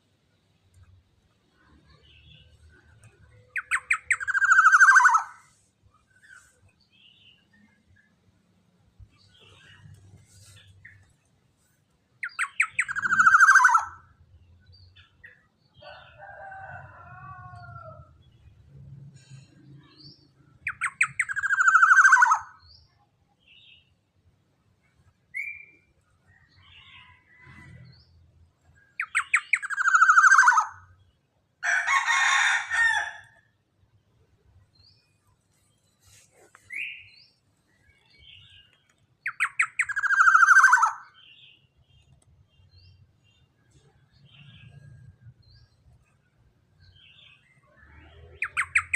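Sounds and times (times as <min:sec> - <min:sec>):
bird calling with harsh rattle: 0:03.5 - 0:05.5, 0:12.2 - 0:14.1, 0:20.7 - 0:22.6, 0:29.0 - 0:30.9, 0:39.2 - 0:41.2.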